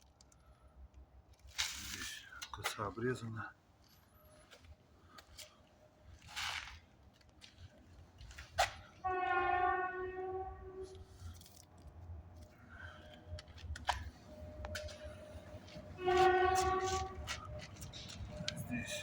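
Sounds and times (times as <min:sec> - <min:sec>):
horn steady tone: 0:09.0 - 0:11.4, 0:13.9 - 0:19.0.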